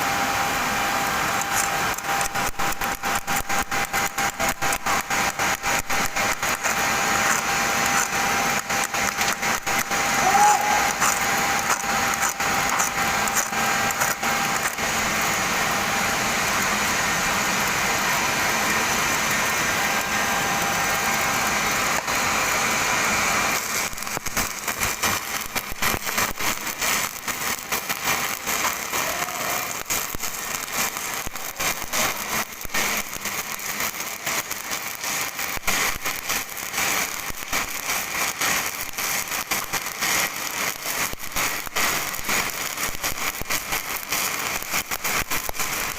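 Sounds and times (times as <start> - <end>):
welding arc hissing and crackling: 0.0 - 45.9.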